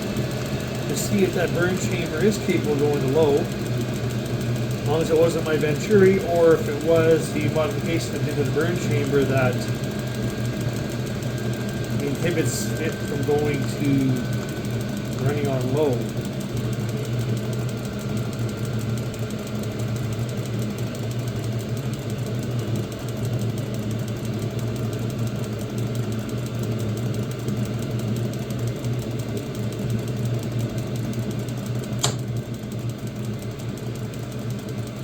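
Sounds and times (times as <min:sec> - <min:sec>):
air heater humming: 0:00.0 - 0:35.0
sharp click: 0:32.0 - 0:32.3.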